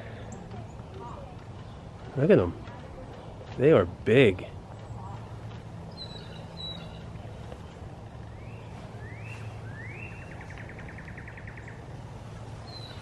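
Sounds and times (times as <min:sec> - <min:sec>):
steady low hum: 0:00.0 - 0:13.0
bird singing: 0:04.7 - 0:13.0.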